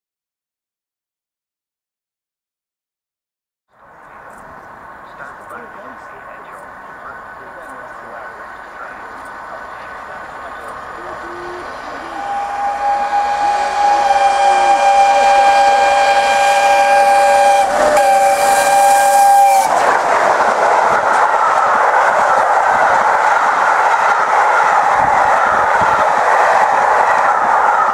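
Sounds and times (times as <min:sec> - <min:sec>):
train wheels roaring past: 0:03.9 - 0:27.9
steam locomotive whistle: 0:10.8 - 0:19.9.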